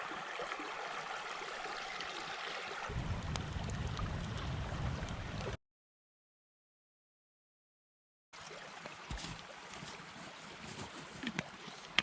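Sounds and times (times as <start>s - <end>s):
creek water running: 0.0s - 5.6s, 8.4s - 12.0s
low rumble: 2.9s - 5.6s.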